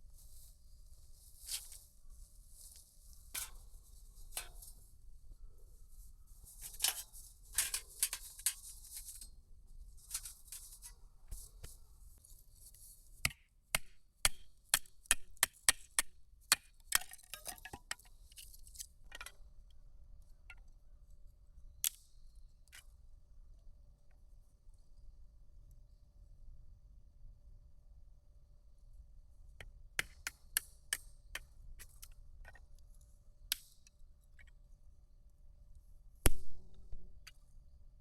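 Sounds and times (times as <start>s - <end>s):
rustling: 0.1s - 5.0s, 5.6s - 13.1s.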